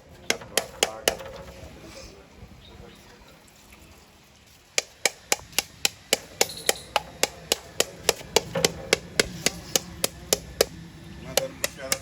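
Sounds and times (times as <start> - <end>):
rapid hammer strikes: 0.2 - 1.6, 4.8 - 12.0.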